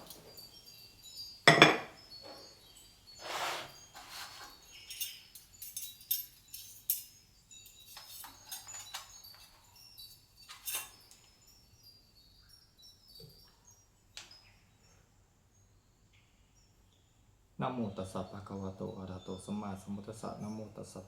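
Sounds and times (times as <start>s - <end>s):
dishes and utensils clinking: 1.4s - 11.3s.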